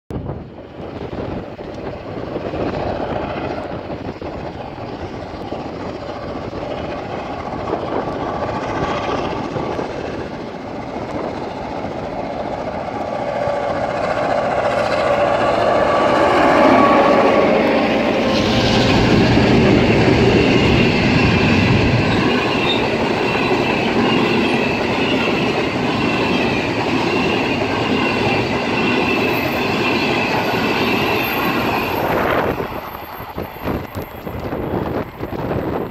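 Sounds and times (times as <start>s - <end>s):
diesel locomotives passing: 0.2s - 35.9s
high wheel squeal: 14.8s - 35.3s.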